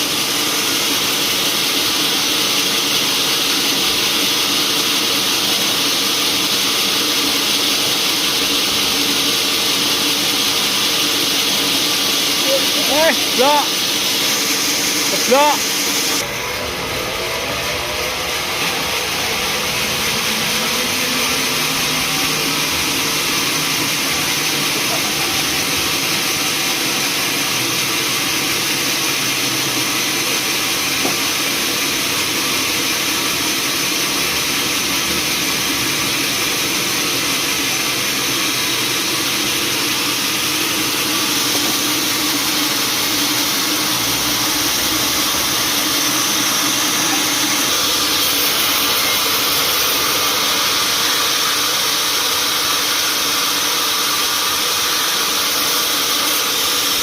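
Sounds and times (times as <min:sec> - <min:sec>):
machinery hiss: 0:00.0 - 0:57.0
sawmill motor drone: 0:00.0 - 0:57.0.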